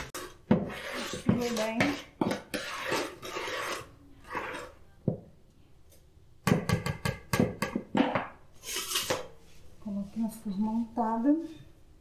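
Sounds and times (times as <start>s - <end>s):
wire whisk beating batter: 0.0s - 4.8s.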